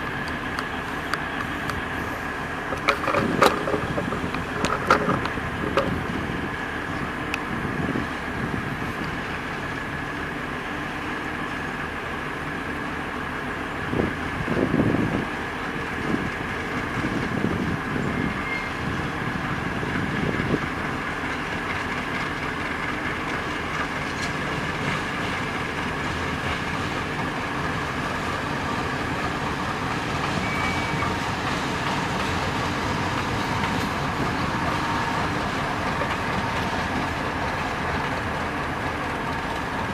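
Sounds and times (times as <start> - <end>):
train wheels rolling over rails: 0.0 - 39.9.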